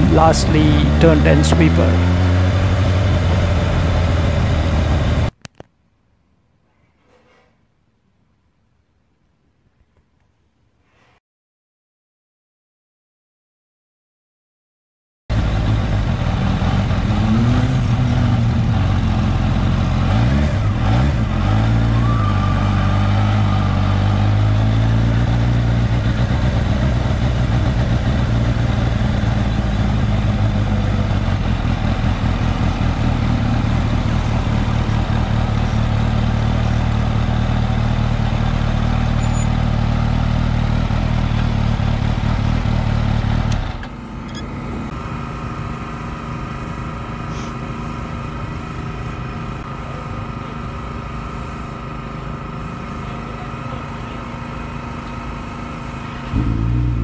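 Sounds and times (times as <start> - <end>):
motorcycle engine idling: 25.3 - 57.0.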